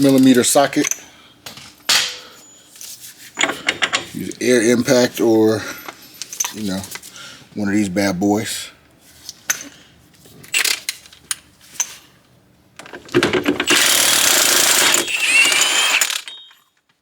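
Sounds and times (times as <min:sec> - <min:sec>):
impact wrench hammering: 0:01.9 - 0:02.4, 0:13.5 - 0:16.5.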